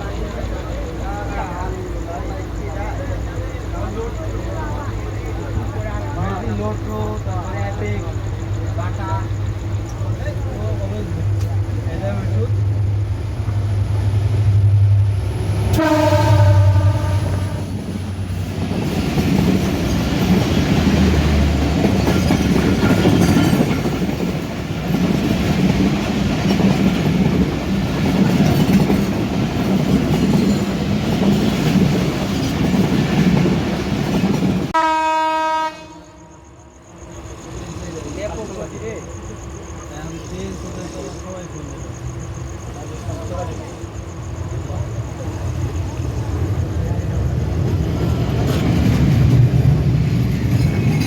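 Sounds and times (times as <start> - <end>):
train horn: 15.7 - 17.8, 34.8 - 36.5
train wheels clickety-clack: 15.7 - 34.8, 45.2 - 51.0.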